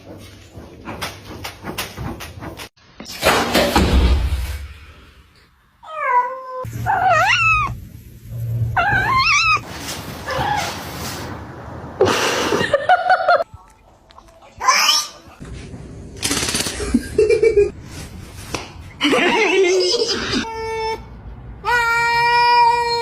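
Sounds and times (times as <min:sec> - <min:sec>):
cat yowling: 0:05.9 - 0:07.8, 0:08.8 - 0:09.6
rustling noise: 0:07.6 - 0:11.8, 0:17.7 - 0:19.0.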